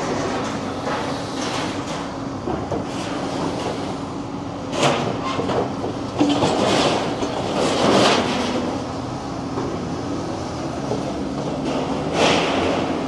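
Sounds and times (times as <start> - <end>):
demolition machine crunching concrete: 6.2 - 8.8, 11.2 - 13.0.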